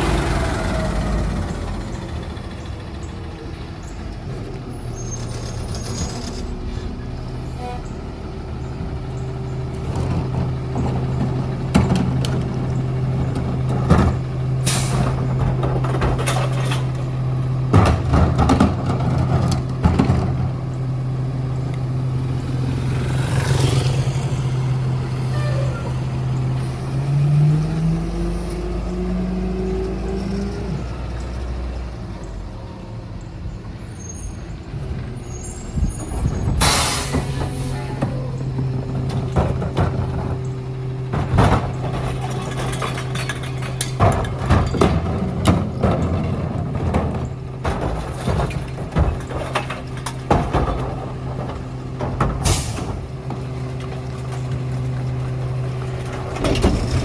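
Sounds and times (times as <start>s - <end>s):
garbage truck engine running: 0.0s - 57.0s
sharp clanks and bangs: 9.8s - 20.8s, 35.7s - 57.0s.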